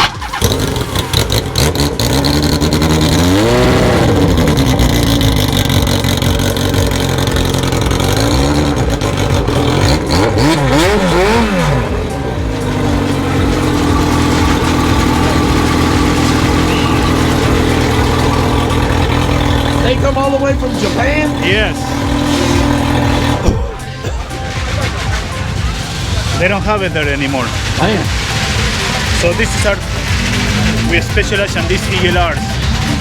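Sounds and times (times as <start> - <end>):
engine revving: 0.0 - 33.0
motorcycle engine idling: 0.0 - 33.0.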